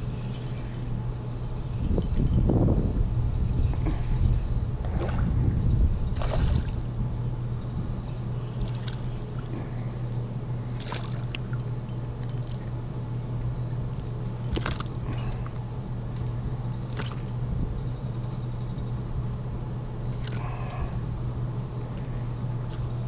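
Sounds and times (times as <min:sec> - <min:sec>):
steady low hum: 0:00.0 - 0:23.0
water lapping against boat hull: 0:03.7 - 0:07.0, 0:08.1 - 0:09.8, 0:10.6 - 0:12.8, 0:14.1 - 0:17.4, 0:20.0 - 0:21.0.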